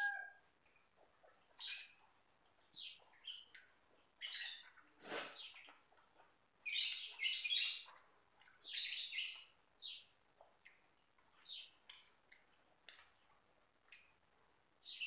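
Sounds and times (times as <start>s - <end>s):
small bird chirping: 1.4s - 10.8s, 11.4s - 12.0s.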